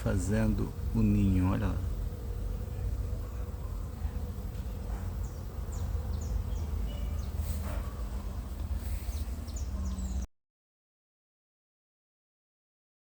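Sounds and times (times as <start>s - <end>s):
bees buzzing: 0.0s - 10.2s
faint high chirps: 5.2s - 10.3s.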